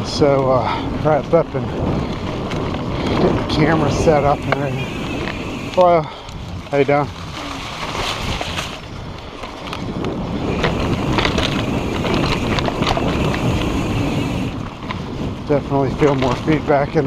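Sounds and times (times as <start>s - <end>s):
bike clicks and rattles: 0.0s - 17.0s
bike tyres rolling on dirt: 0.0s - 17.0s
wind buffeting microphone: 0.0s - 17.0s.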